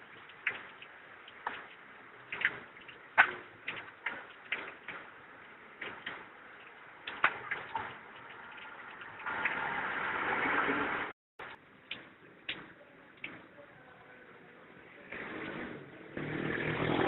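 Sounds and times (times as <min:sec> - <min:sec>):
sharp clicks and light knocks: 0:00.1 - 0:05.2, 0:05.8 - 0:09.0, 0:11.4 - 0:13.5.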